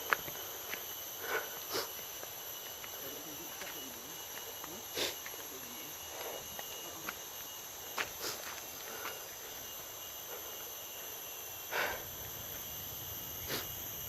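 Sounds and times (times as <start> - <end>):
footsteps: 0.0 - 0.9, 1.6 - 9.4
high-pitched insect chorus: 0.0 - 14.0.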